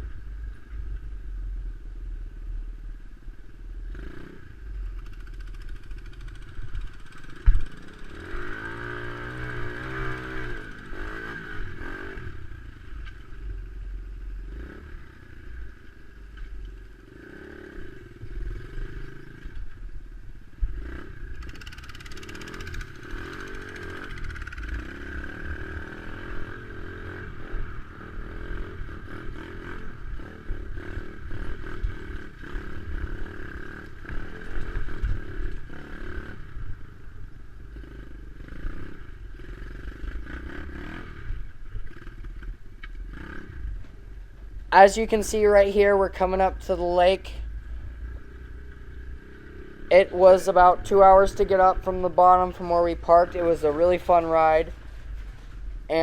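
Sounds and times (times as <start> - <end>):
dirt bike engine revving: 3.9 - 16.2, 20.7 - 44.1, 44.7 - 56.0.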